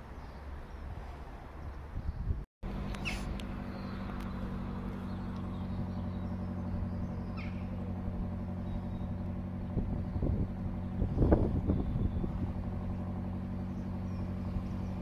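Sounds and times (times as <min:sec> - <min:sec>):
high bird chirp: 0:02.9 - 0:07.8, 0:08.6 - 0:09.2, 0:13.7 - 0:15.0.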